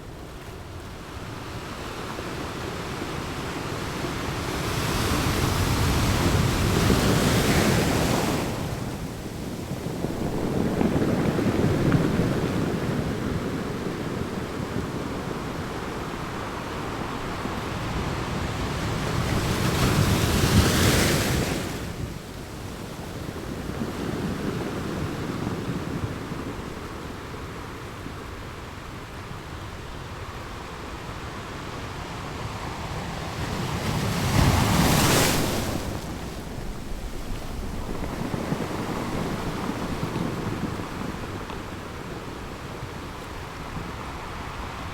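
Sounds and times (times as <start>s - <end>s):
waves breaking on beach: 0.0s - 44.9s
wind on microphone: 2.7s - 30.7s, 31.5s - 44.9s.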